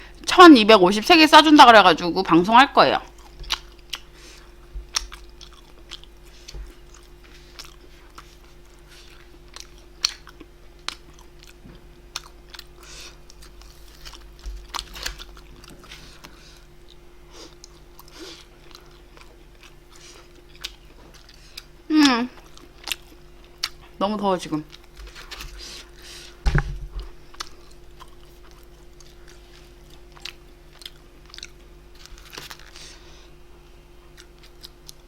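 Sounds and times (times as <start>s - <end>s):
faint steady hum: 0.0s - 35.0s
person chewing and biting food: 3.1s - 24.0s, 27.0s - 33.1s, 34.1s - 35.0s.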